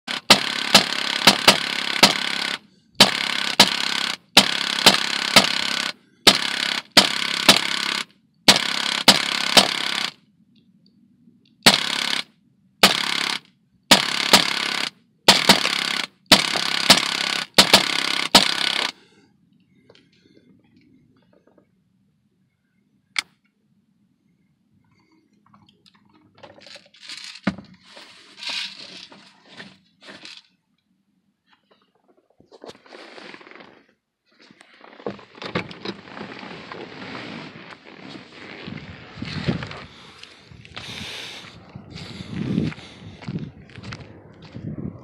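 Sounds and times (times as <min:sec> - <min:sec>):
air gun firing bursts: 0:00.0 - 0:10.2, 0:11.6 - 0:19.0.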